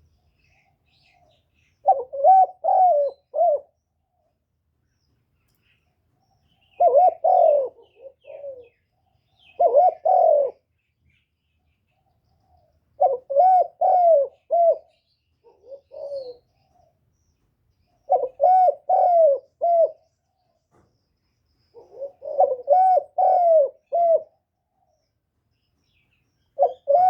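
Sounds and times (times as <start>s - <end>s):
dove cooing: 0.6s - 3.8s, 6.6s - 10.7s, 12.0s - 17.0s, 18.0s - 20.1s, 21.7s - 25.0s, 26.6s - 27.0s.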